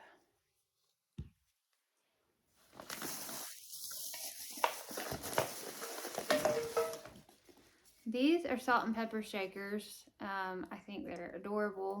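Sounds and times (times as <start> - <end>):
rustling and handling noise: 0.6 - 8.4.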